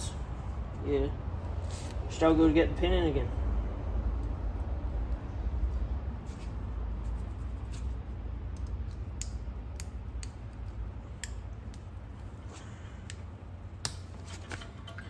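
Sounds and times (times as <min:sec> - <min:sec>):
low steady hum: 0:00.0 - 0:15.0
small metal clicks and taps: 0:08.5 - 0:12.3, 0:13.0 - 0:15.0.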